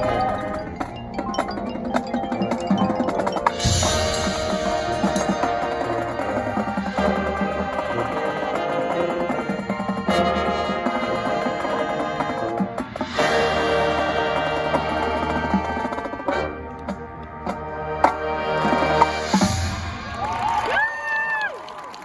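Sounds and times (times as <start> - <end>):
mallet percussion and chimes: 0.0 - 7.1
held chords: 0.0 - 19.6.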